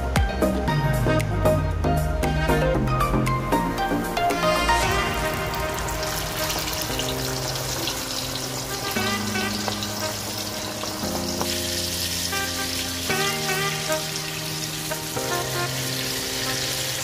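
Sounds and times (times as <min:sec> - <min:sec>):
background music with low notes: 0:00.0 - 0:17.0
chicken frying in hot oil: 0:04.3 - 0:17.0.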